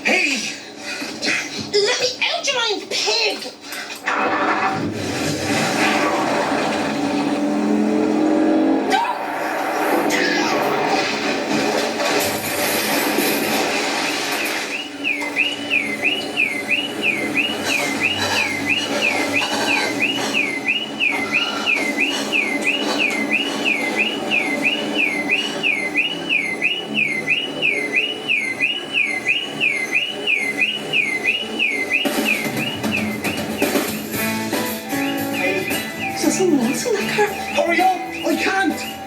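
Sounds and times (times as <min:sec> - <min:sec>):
electronic siren: 0:04.7 - 0:39.0
background music with drums: 0:32.1 - 0:39.0.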